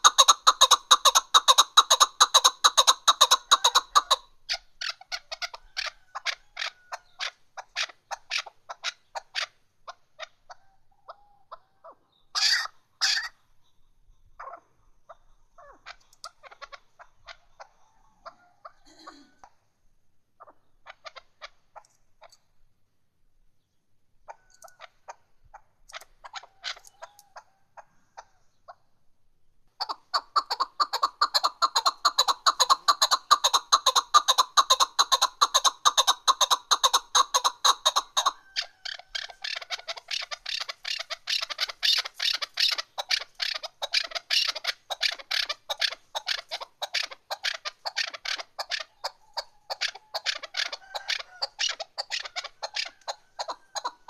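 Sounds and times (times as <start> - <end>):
partridge calling: 0.0 - 19.8, 20.4 - 22.6, 23.6 - 29.0, 29.7 - 54.0.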